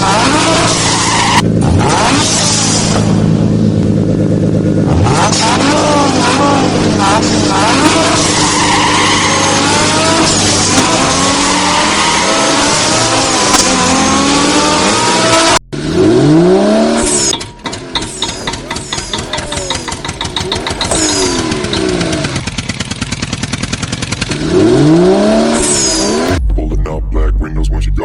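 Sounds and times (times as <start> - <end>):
engine revving up and down: 0.0 - 27.0
fast even chugging: 17.3 - 24.4.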